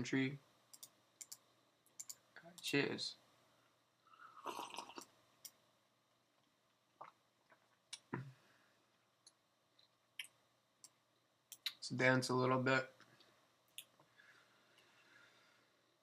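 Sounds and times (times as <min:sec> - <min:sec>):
computer mouse clicks: 0:00.7 - 0:02.2.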